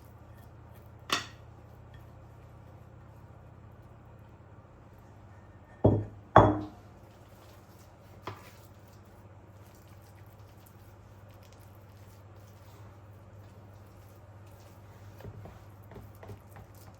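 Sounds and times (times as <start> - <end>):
kitchenware clinking: 5.8 - 6.8.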